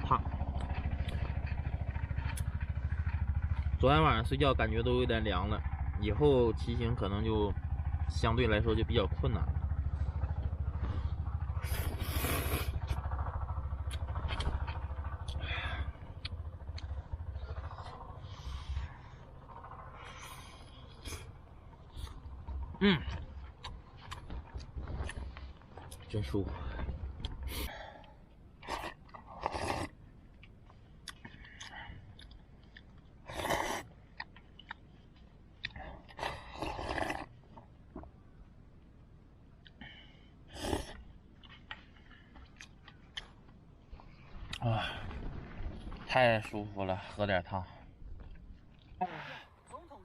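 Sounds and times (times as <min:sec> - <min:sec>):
low rumble: 0:00.0 - 0:50.0
chewing: 0:00.4 - 0:03.8, 0:13.8 - 0:38.2, 0:39.6 - 0:46.0, 0:48.0 - 0:49.0
person slurping noodles: 0:11.6 - 0:12.8, 0:28.6 - 0:29.9, 0:33.3 - 0:33.9, 0:36.1 - 0:37.3, 0:40.5 - 0:41.0.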